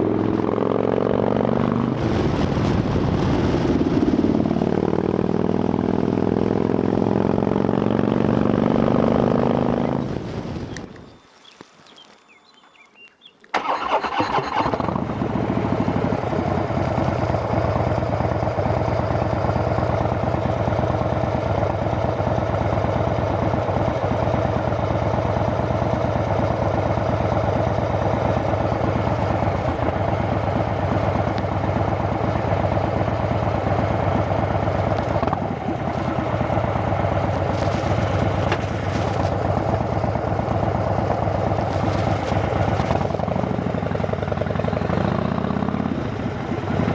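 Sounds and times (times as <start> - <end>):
motorcycle engine idling: 15.0 - 46.9.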